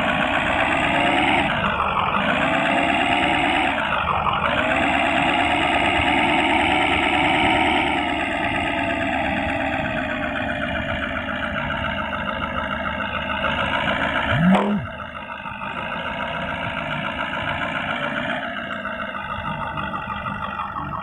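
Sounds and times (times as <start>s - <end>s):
military truck engine running: 0.0s - 21.0s
rising and falling tone: 14.3s - 14.9s.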